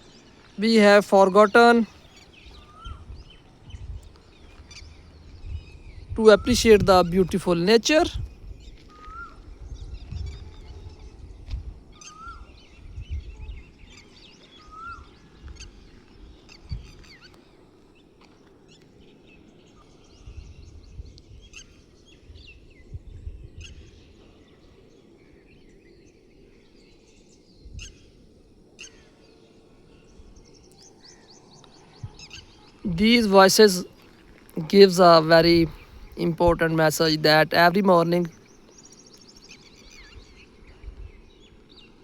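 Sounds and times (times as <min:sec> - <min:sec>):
birds chirping and singing: 0:00.0 - 0:11.4, 0:28.8 - 0:42.0.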